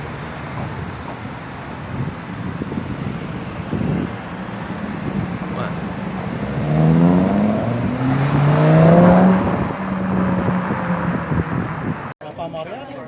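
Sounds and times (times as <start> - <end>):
car engine revving: 1.9 - 12.2.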